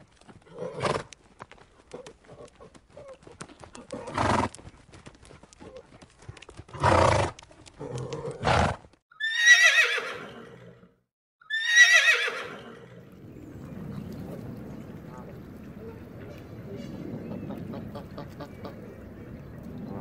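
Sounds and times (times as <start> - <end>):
horse whinnying: 7.9 - 10.8, 11.4 - 13.0.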